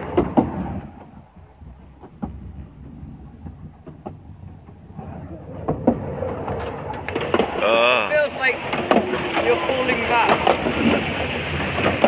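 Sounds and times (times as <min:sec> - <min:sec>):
train rumbling on track: 0:00.0 - 0:12.0
sharp clicks and knocks: 0:01.9 - 0:04.9, 0:05.6 - 0:07.6.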